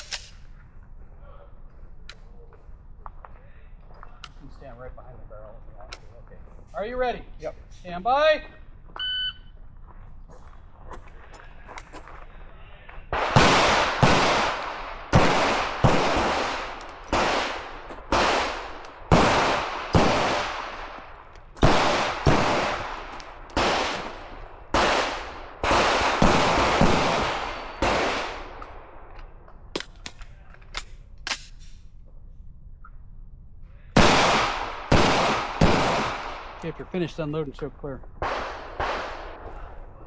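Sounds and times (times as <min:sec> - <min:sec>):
echoing gunshots: 0:13.1 - 0:30.0, 0:34.0 - 0:37.3, 0:38.2 - 0:40.0.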